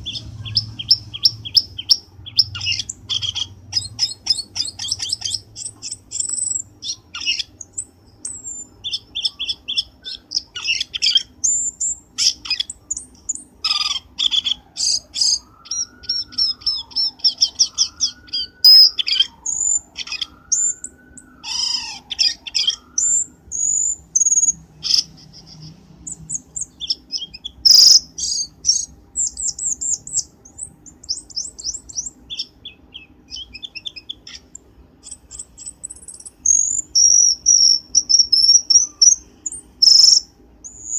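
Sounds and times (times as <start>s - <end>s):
bird high sharp chirps and trills: 0.0s - 40.9s
slow wavering whistle: 15.2s - 21.9s.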